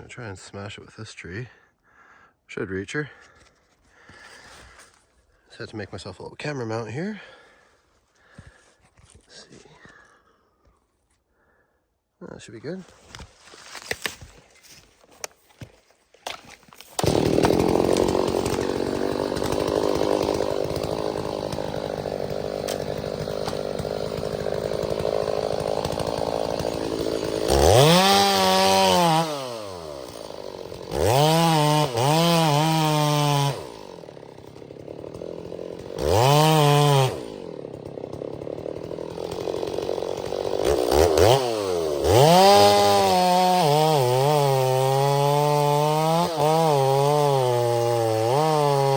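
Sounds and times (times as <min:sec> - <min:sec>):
chainsaw running and revving: 0:17.0 - 0:48.9.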